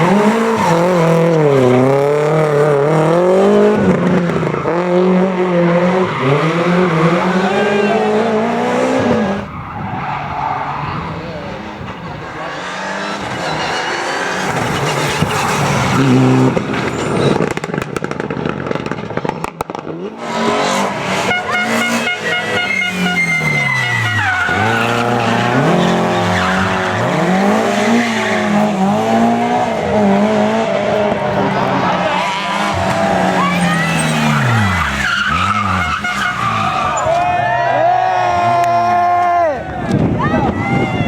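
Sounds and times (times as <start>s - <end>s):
rally car passing at full throttle: 0.0s - 41.0s
car engine revving through gear changes: 19.6s - 36.2s.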